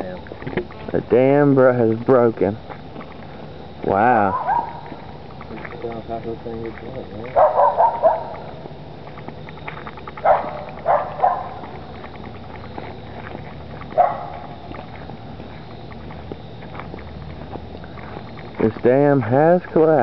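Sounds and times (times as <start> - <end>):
low steady hum: 0.0 - 20.0
dog barking: 4.3 - 5.0, 7.3 - 8.5, 10.2 - 11.8, 13.9 - 14.5.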